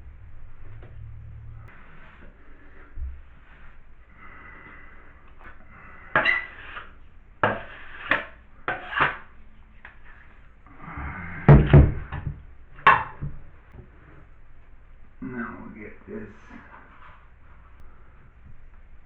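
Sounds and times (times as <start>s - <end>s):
taping knife scraping compound: 6.1s - 10.1s.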